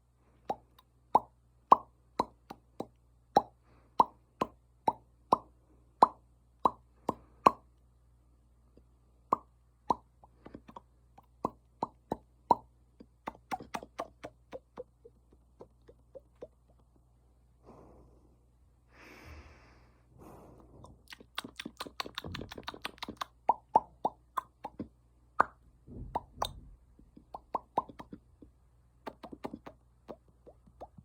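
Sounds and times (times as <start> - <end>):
hollow mouth pops: 9.3 - 16.8, 20.8 - 31.0.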